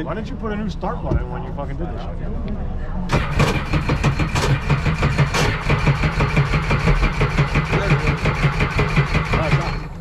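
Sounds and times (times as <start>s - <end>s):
engine cranking on starter: 3.1s - 10.0s.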